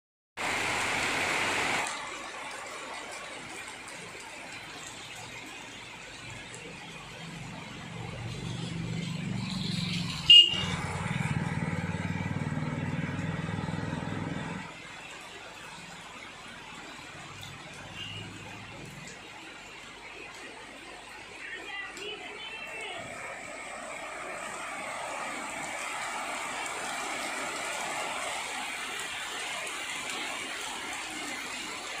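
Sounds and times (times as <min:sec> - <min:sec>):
heavy rain on street: 0:00.4 - 0:32.0
vehicle engine running: 0:08.5 - 0:14.7
high-pitched horn toot: 0:10.3 - 0:10.8.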